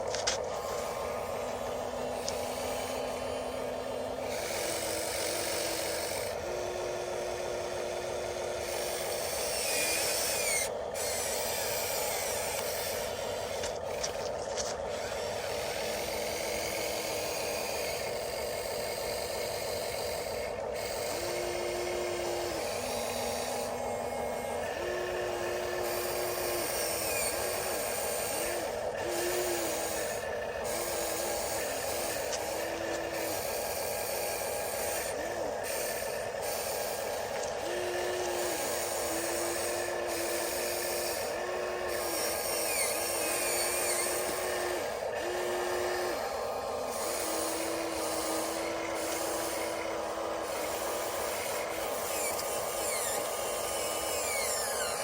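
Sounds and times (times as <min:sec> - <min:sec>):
electric motor whine: 0:00.0 - 0:55.0
steady gear whine: 0:00.0 - 0:55.0.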